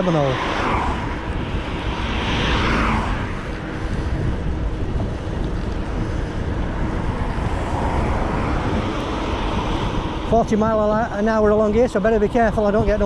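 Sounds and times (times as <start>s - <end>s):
road noise: 0.0s - 13.0s
wind buffeting microphone: 0.0s - 13.0s.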